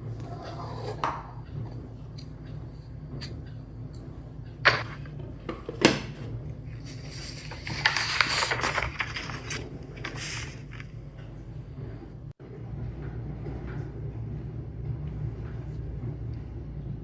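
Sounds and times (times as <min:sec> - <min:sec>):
rustling and scraping: 0:00.1 - 0:12.1.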